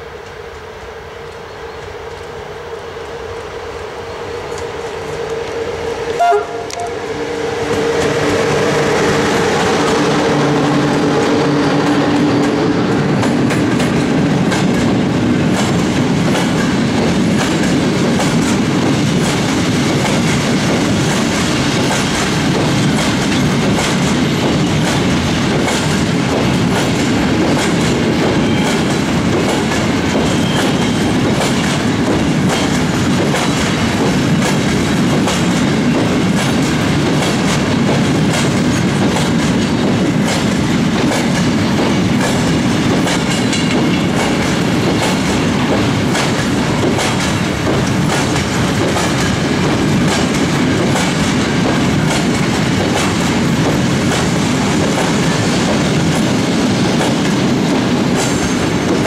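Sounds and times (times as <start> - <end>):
electric locomotive hum: 0.0 - 59.0
freight train wheels clicking: 0.1 - 59.0.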